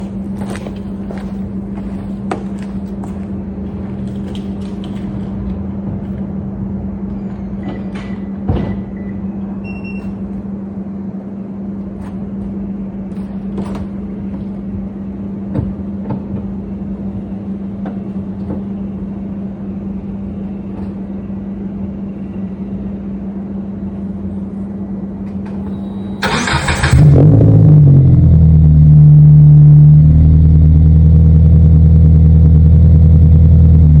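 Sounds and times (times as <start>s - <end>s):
steady hum: 0.0s - 34.0s
car engine idling loudly: 26.4s - 34.0s.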